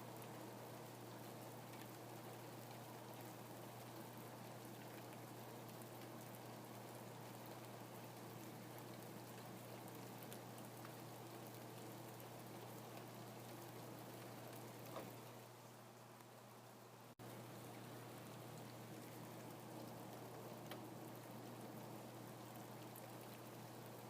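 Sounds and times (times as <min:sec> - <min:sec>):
faint rain falling: 0:00.0 - 0:24.0.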